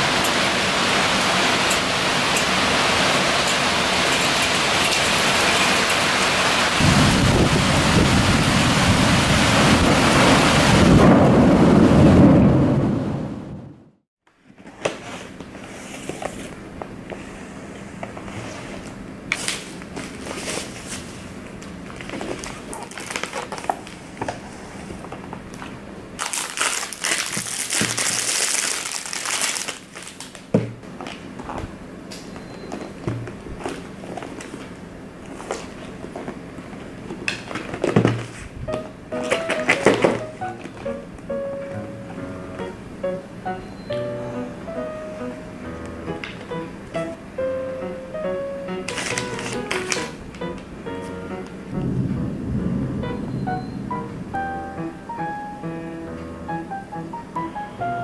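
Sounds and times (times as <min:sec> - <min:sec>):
heavy rain pouring: 0:00.0 - 0:13.7, 0:51.6 - 0:55.2
low rumble of thunder: 0:06.8 - 0:13.9, 0:51.7 - 0:54.5
paper and plastic crinkling: 0:18.1 - 0:31.6, 0:33.5 - 0:40.9, 0:48.9 - 0:51.2.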